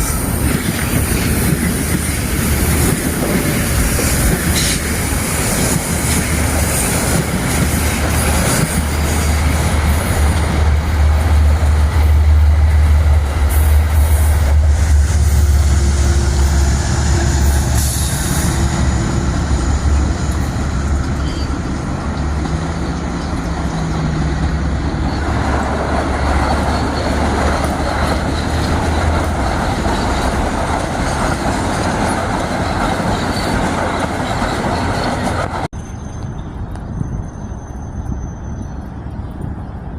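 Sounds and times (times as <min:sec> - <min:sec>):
train rumbling past: 0:00.0 - 0:39.9
wheel-on-rail noise: 0:00.0 - 0:39.9.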